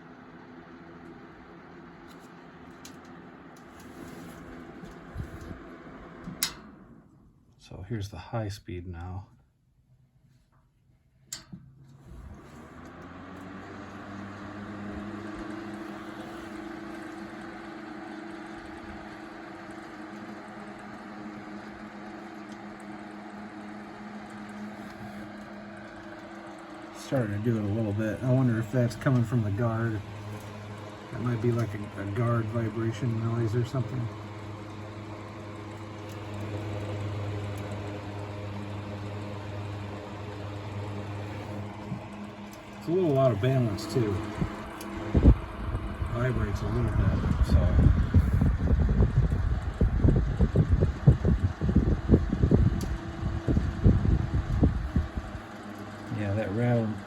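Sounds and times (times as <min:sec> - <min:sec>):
air rushing from fan blades: 0:00.0 - 0:08.3, 0:10.1 - 0:57.0
table fan humming: 0:00.0 - 0:57.0
fan switch click: 0:06.2 - 0:06.8, 0:11.3 - 0:11.7.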